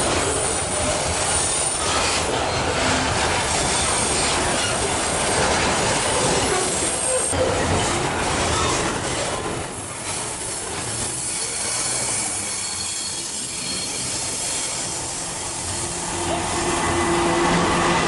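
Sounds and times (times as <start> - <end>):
train wheels rumbling on rail: 0.0 - 18.0
faint high wheel squeal: 11.1 - 16.0.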